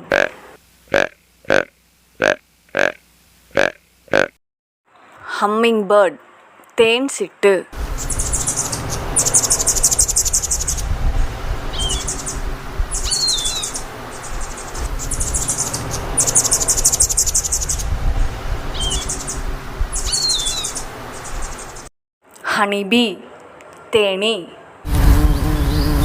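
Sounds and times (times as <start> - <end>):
hummingbird buzzy trills: 0.0 - 0.3, 0.9 - 4.3, 7.8 - 21.9, 24.9 - 26.0
steady low rumble: 7.8 - 20.1.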